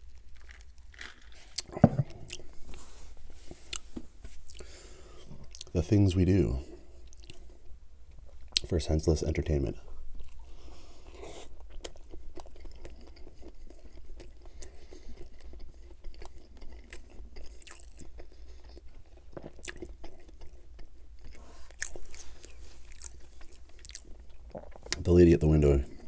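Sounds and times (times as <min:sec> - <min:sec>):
wet chewing: 0:10.2 - 0:25.1.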